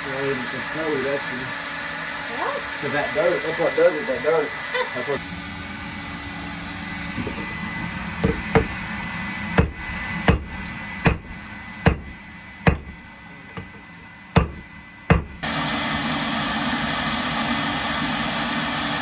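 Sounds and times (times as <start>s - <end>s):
hammer strikes: 8.2s - 8.9s, 9.6s - 15.5s.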